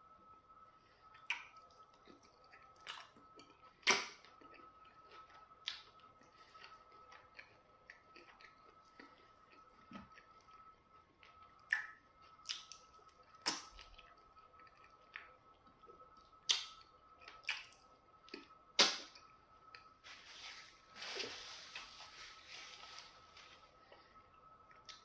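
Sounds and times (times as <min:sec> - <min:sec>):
wet chewing smacks and clicks: 0:01.1 - 0:10.6, 0:11.3 - 0:15.3, 0:16.5 - 0:19.1
paper napkin rustle: 0:20.0 - 0:23.8.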